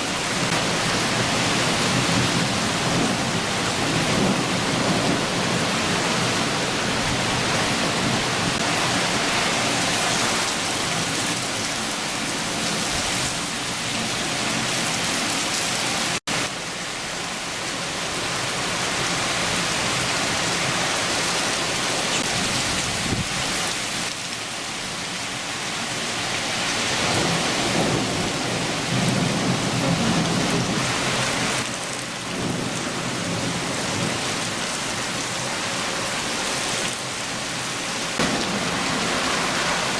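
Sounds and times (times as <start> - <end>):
heavy rain falling: 0.0 - 39.9
low rumbles of thunder: 27.0 - 31.6.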